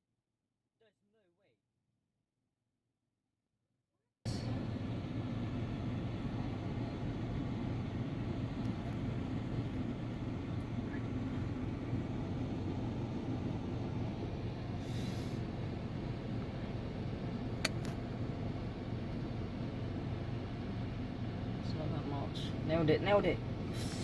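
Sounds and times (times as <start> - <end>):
steady low rumble: 4.3 - 24.0
sharp click: 17.6 - 18.0.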